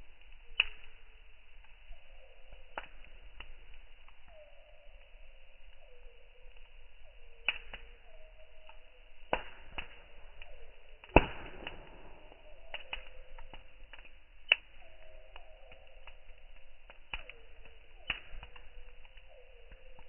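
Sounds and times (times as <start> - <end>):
campfire crackling and popping: 0.0 - 20.0
faint descending whistle: 14.8 - 16.4.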